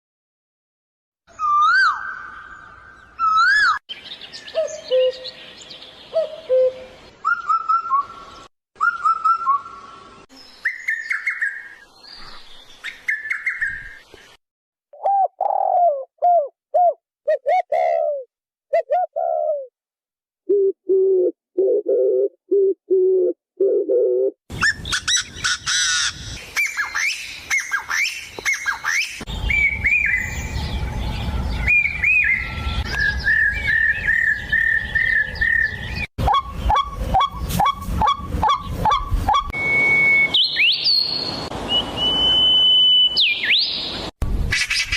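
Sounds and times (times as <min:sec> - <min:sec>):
chorus of bird chirps: 0:01.3 - 0:14.4, 0:24.6 - 0:39.5
whistled bird songs: 0:01.3 - 0:14.4, 0:24.6 - 0:44.9
low bird coos: 0:15.0 - 0:19.7, 0:20.5 - 0:24.4.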